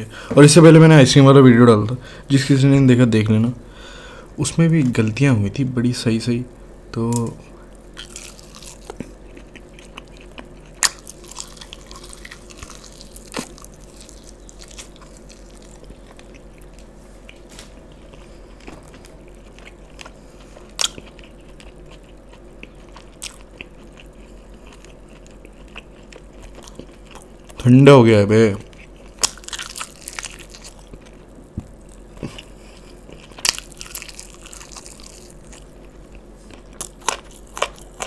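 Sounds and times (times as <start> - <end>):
chewing crunchy food: 7.7 - 27.8, 28.6 - 38.0.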